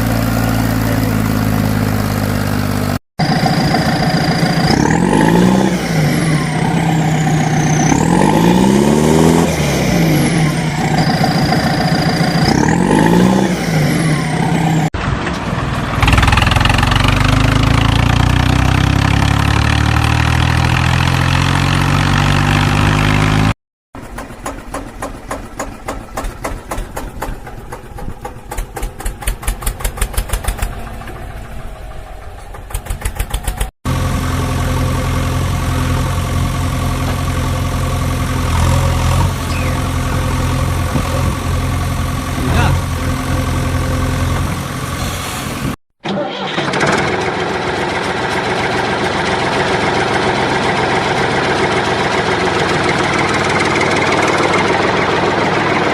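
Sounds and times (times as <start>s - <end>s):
engine running steadily: 0.0s - 7.8s, 24.0s - 45.8s, 46.4s - 55.9s
chugging engine rhythm: 24.0s - 31.7s.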